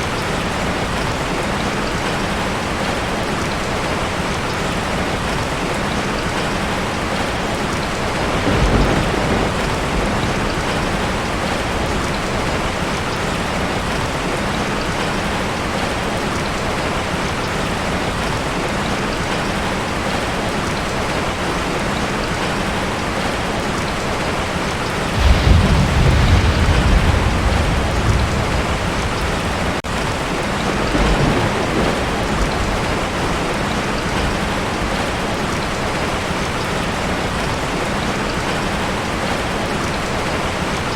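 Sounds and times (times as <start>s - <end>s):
heavy rain on a tin roof: 0.0s - 40.9s
thunder rumbling: 7.9s - 15.8s, 25.1s - 36.4s.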